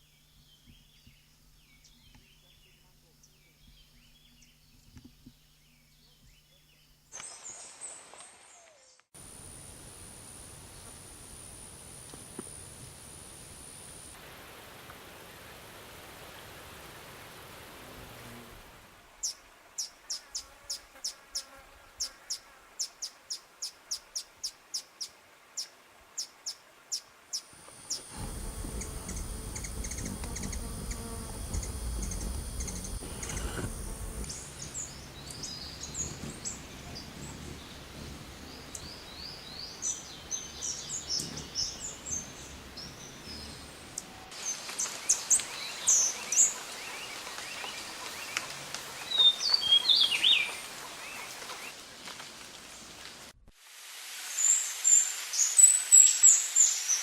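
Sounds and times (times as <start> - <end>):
steady high insect-like tone: 9.2 - 14.2, 27.5 - 36.1
wind rumble on microphone: 28.1 - 39.4.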